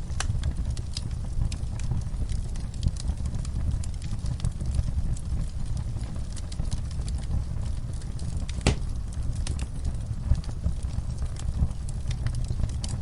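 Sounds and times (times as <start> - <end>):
low rumble of flames: 0.0 - 13.0
wood fire crackling and popping: 0.0 - 13.0.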